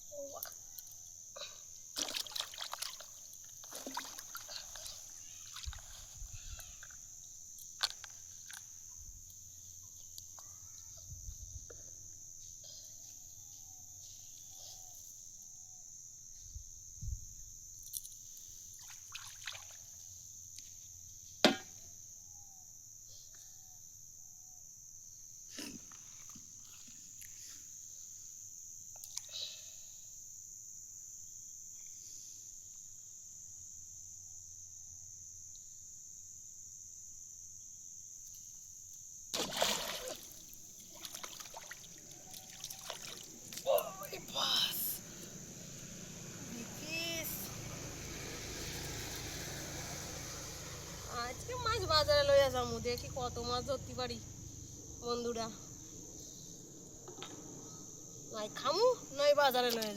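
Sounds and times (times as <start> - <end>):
crickets chirring: 0.0 - 59.9
small water splashes: 2.0 - 6.1, 18.7 - 20.0, 39.3 - 44.3, 47.4 - 51.1.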